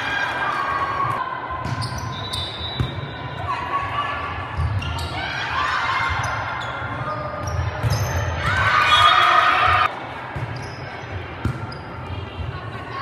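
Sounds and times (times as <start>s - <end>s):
sneakers squeaking on floor: 1.6s - 3.4s, 4.6s - 5.2s, 6.1s - 9.3s, 10.4s - 12.0s.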